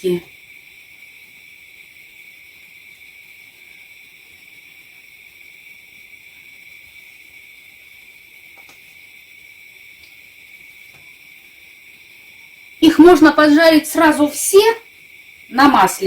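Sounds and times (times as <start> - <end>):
butter sizzling in a frying pan: 0.0 - 16.0.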